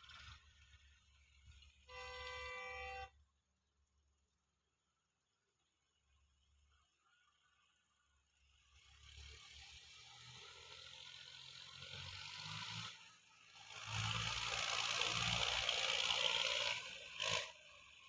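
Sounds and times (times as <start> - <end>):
tractor engine working hard: 0.0 - 3.0, 8.8 - 18.0.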